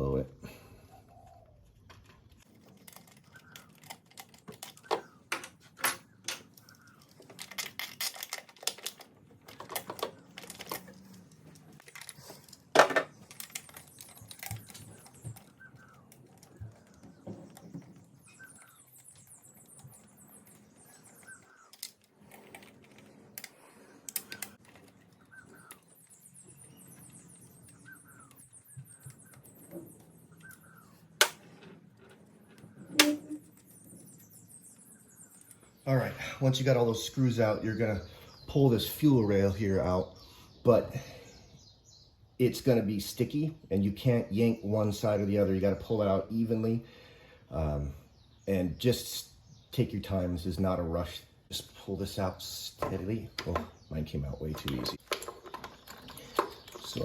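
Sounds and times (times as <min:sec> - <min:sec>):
metal tools clinking: 0:02.5 - 0:16.7, 0:54.5 - 0:57.0.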